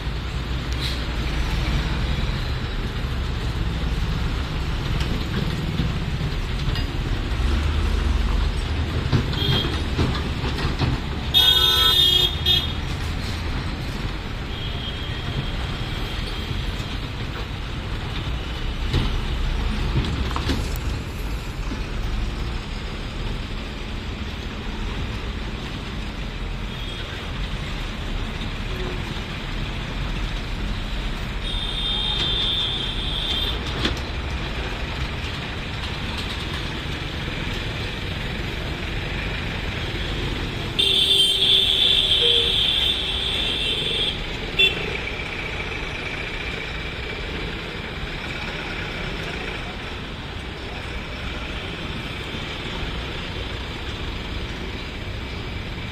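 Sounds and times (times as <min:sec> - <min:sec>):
trucks and buses rumbling past: 0:00.0 - 0:55.9
vehicle horns honking: 0:11.3 - 0:12.8, 0:40.8 - 0:44.9.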